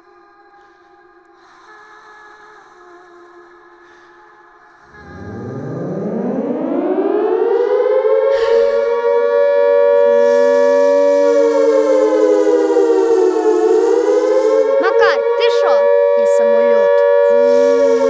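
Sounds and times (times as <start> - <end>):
air-raid siren wailing: 4.9 - 18.0.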